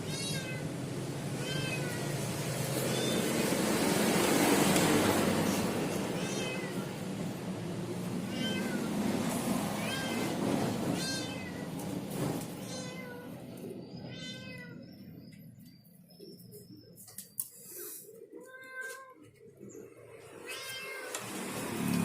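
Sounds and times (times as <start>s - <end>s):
cat meowing: 0.0s - 0.7s, 1.4s - 2.2s, 2.8s - 3.3s, 5.9s - 7.0s, 8.2s - 9.0s, 9.8s - 11.8s, 12.6s - 15.3s, 20.4s - 21.2s
steady background noise: 0.0s - 22.0s.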